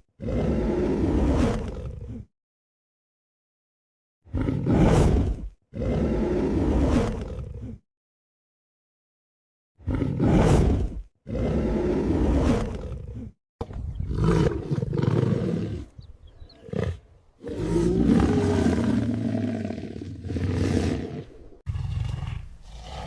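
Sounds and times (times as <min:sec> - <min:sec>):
large animal roaring: 0:00.2 - 0:02.2, 0:05.7 - 0:07.8, 0:09.8 - 0:13.3, 0:14.0 - 0:23.0.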